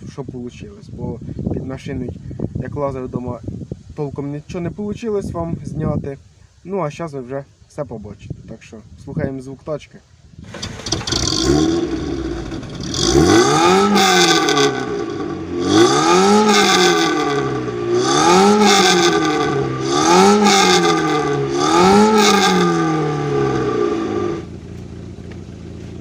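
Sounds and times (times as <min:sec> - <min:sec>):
car engine revving: 0:10.5 - 0:26.0.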